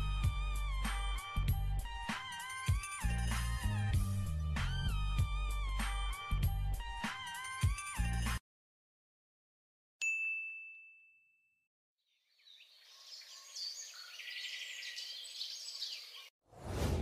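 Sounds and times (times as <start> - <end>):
birds chirping and calling: 12.3 - 16.3.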